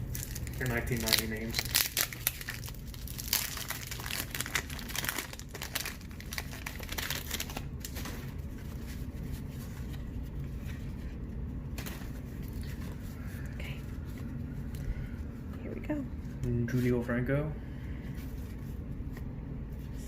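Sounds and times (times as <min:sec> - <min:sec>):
paper wrapper crinkling and tearing: 0:00.0 - 0:11.0
low steady hum: 0:00.0 - 0:20.0.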